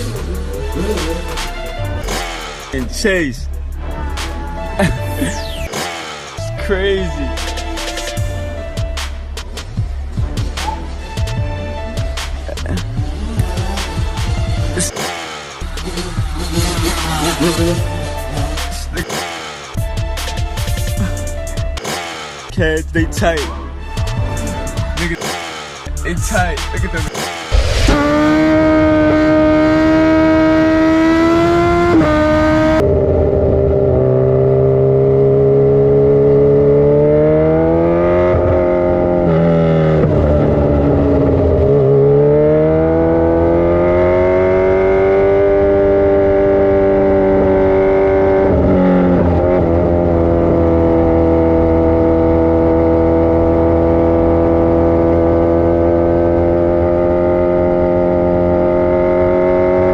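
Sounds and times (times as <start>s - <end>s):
dirt bike engine running: 0.0s - 5.4s.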